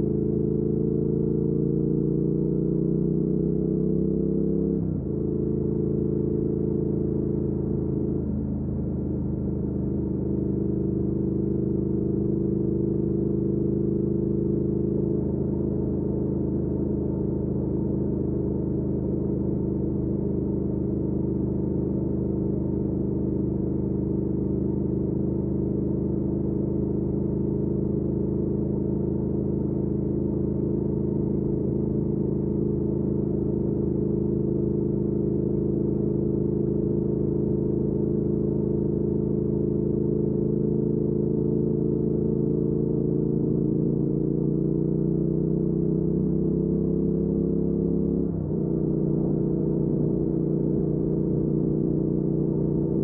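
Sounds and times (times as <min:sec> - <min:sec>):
motorcycle engine cruising: 0:45.6 - 0:53.0.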